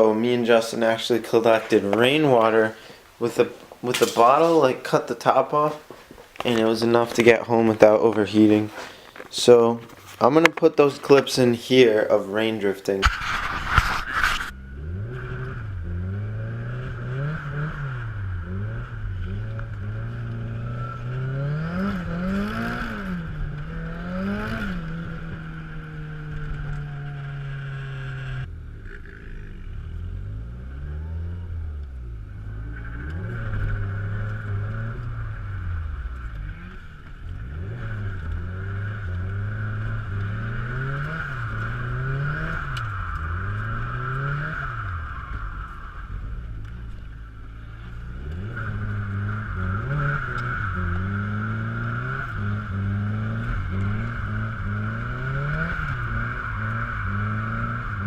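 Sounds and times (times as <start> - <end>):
car engine revving: 0.0 - 58.0
high tire squeal: 13.0 - 28.5, 32.4 - 58.0.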